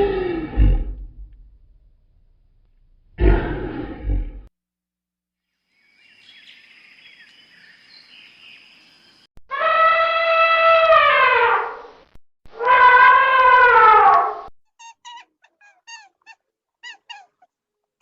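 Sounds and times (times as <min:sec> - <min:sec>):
long loud animal calls: 0:09.5 - 0:11.7, 0:12.6 - 0:14.2.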